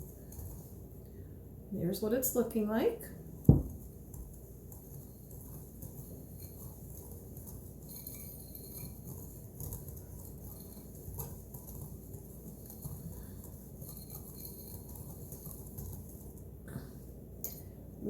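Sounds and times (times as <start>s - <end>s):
whisk stirring dry powder: 0.0s - 17.1s.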